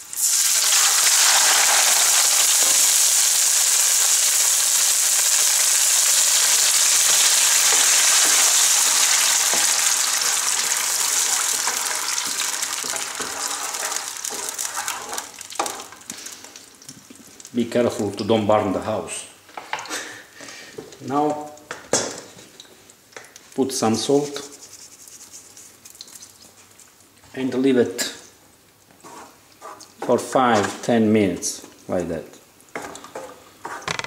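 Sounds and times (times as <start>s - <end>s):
tomatoes sizzling in a frying pan: 0.0s - 17.7s
wooden spoon stirring and scraping: 11.6s - 16.4s, 24.0s - 27.0s, 28.9s - 30.2s.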